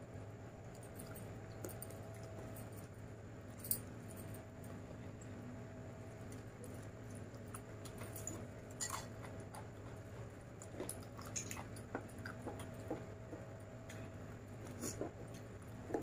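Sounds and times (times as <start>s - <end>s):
person chewing: 6.6s - 13.0s.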